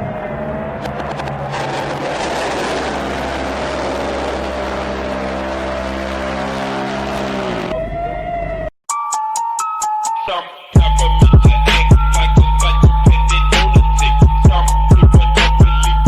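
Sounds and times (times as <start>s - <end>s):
machine roaring and humming: 0.5s - 7.8s.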